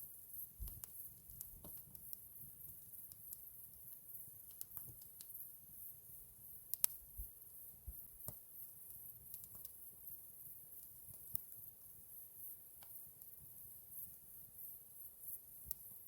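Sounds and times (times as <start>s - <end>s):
faint steady hiss: 0.0s - 16.0s
campfire crackling and popping: 0.4s - 5.4s, 6.7s - 7.0s, 9.3s - 9.8s.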